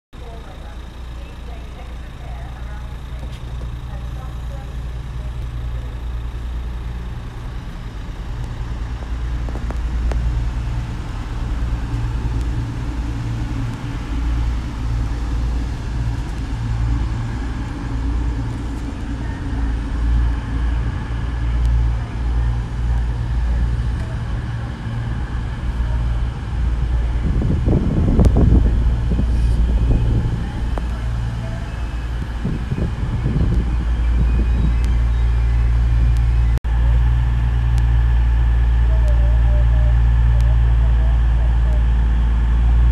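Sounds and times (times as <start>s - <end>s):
passenger train rumbling past: 0.2s - 42.9s.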